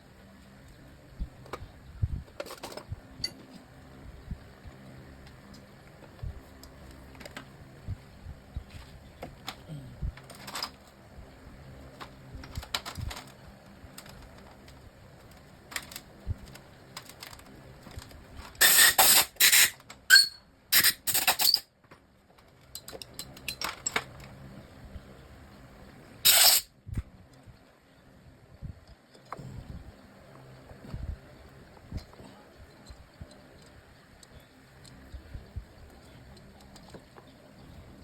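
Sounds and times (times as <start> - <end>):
clicks of tools and metal parts: 2.3 - 3.6, 18.4 - 21.6, 22.6 - 24.1, 26.3 - 26.7.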